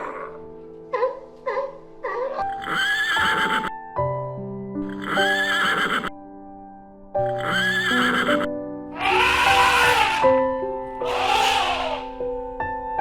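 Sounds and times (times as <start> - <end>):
horse neighing: 0.0 - 0.4, 2.4 - 3.8, 4.8 - 6.1, 7.3 - 10.4, 11.0 - 12.2
background music: 0.0 - 13.0.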